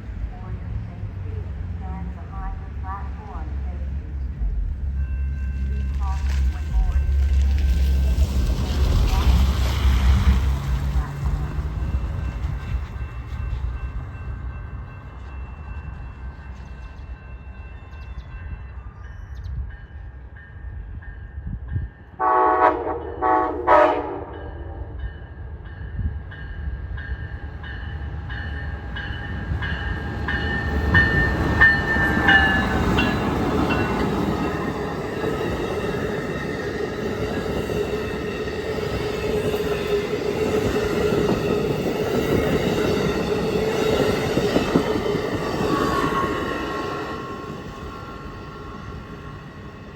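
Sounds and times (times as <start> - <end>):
train wheels rumbling on rail: 0.0 - 49.9
train horn blasts: 22.2 - 25.0.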